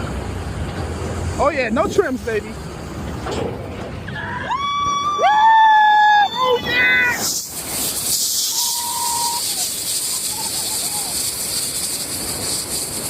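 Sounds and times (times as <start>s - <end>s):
air and rain rushing past: 0.0s - 13.0s
distant scream: 4.1s - 11.4s.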